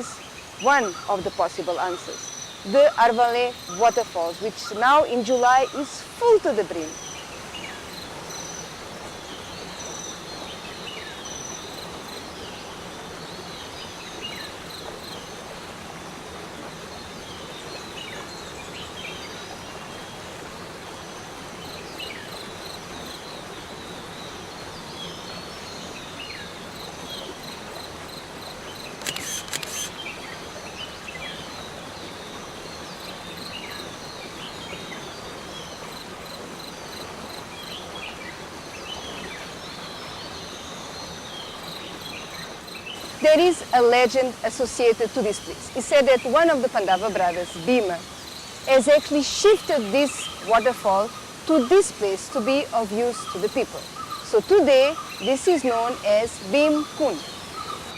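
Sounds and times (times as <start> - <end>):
waterfall rushing: 0.0 - 57.9
high insect tone: 26.5 - 30.1.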